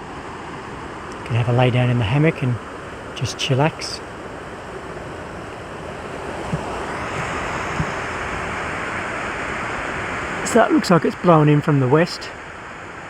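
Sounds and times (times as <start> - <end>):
wind gusting: 0.0 - 13.0.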